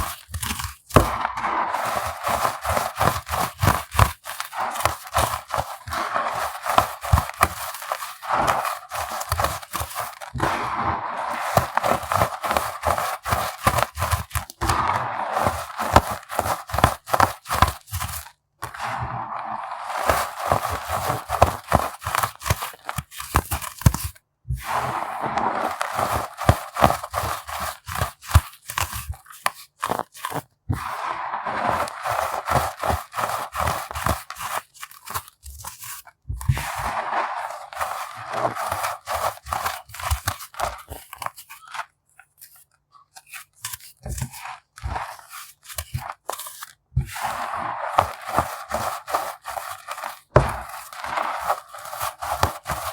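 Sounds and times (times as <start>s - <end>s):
baking soda pebbles crushed: 0.0s - 41.8s, 43.3s - 52.9s.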